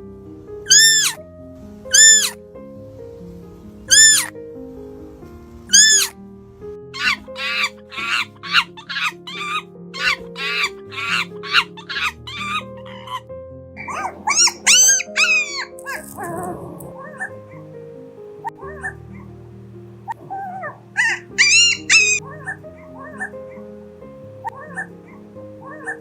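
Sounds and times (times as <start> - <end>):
background music with sustained tones: 0.0 - 26.0
dog yipping: 0.7 - 1.2, 1.9 - 2.4, 3.9 - 4.3, 5.7 - 6.1, 7.0 - 13.2, 13.8 - 17.6, 20.1 - 23.6, 24.4 - 26.0.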